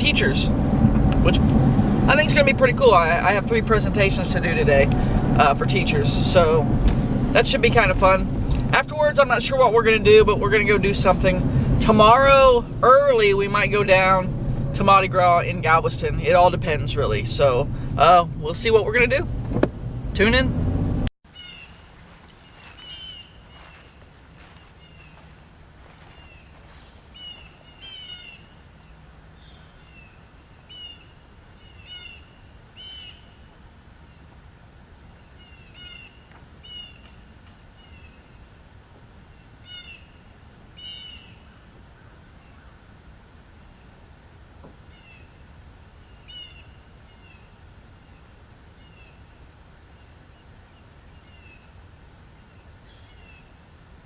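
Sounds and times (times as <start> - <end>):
low background rumble: 0.0 - 21.1
birds calling: 21.3 - 33.4, 35.2 - 38.5, 39.3 - 43.0, 46.0 - 49.4.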